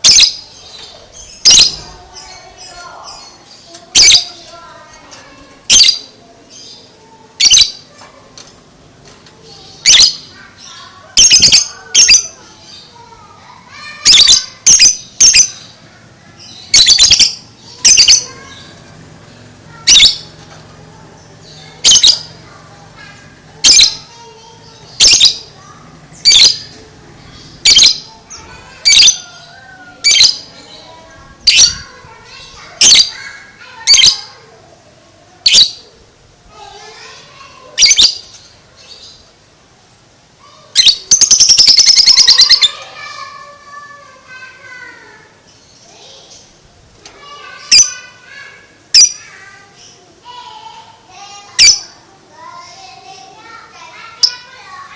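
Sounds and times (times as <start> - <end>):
lovebird shrill chattering: 0.0 - 0.4, 1.2 - 4.4, 5.7 - 6.0, 7.4 - 7.8, 9.8 - 12.8, 14.0 - 15.7, 16.4 - 18.7, 19.7 - 20.3, 21.4 - 22.4, 23.6 - 24.1, 24.9 - 25.5, 26.2 - 31.9, 32.8 - 33.2, 37.8 - 39.2, 40.7 - 42.9, 47.6 - 48.1, 51.6 - 51.9.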